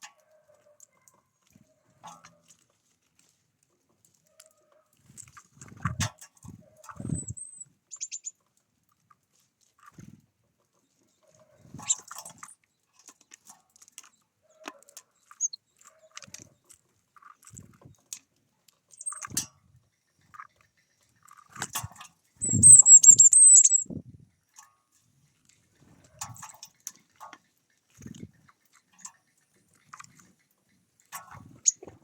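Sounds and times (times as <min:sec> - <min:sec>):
small birds chirping: 0:07.0 - 0:08.4, 0:15.2 - 0:15.8, 0:18.9 - 0:21.3, 0:22.4 - 0:23.9, 0:28.3 - 0:32.0.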